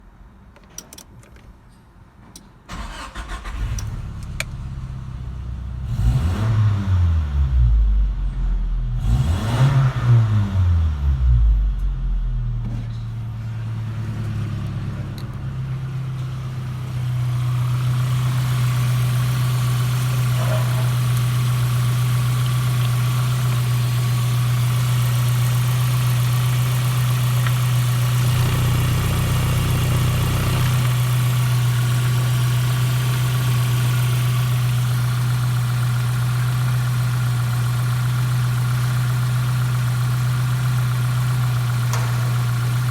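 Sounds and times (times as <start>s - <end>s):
car engine idling: 2.7s - 6.3s, 11.6s - 42.9s
car engine starting and revving: 2.7s - 12.6s, 13.2s - 42.9s.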